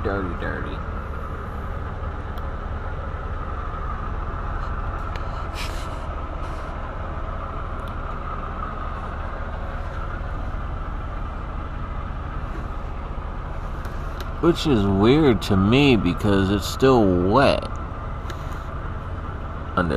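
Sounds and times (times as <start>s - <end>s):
diesel truck engines idling: 0.0s - 19.9s.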